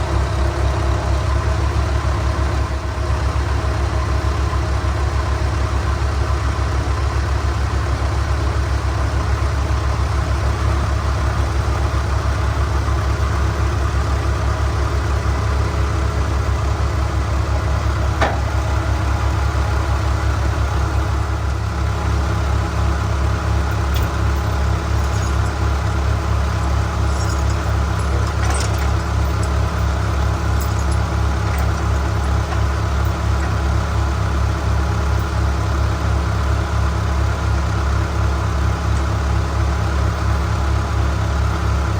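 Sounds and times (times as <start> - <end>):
vehicle engine droning: 21.9 - 39.6.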